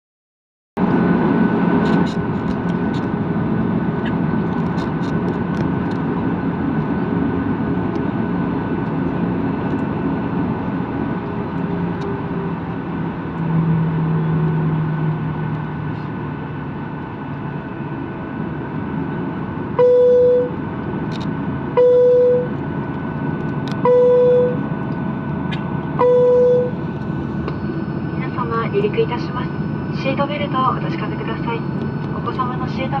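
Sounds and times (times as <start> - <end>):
jet engines humming: 0.8 - 33.0
loud short beeps: 21.8 - 22.5, 23.9 - 24.6, 26.0 - 26.8.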